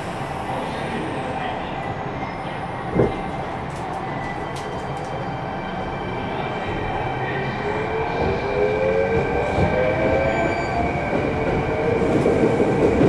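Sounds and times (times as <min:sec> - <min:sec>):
train rumbling from inside: 0:00.0 - 0:13.0
train thump: 0:02.9 - 0:03.3.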